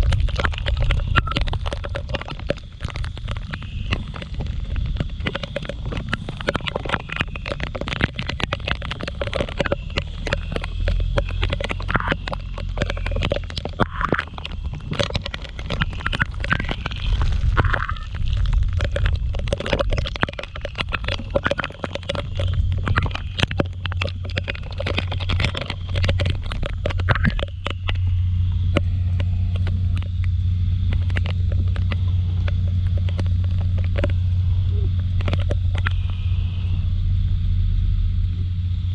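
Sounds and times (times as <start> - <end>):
raindrops crackling on microphone: 0.0 - 36.7
scooter engine hum: 27.5 - 38.9.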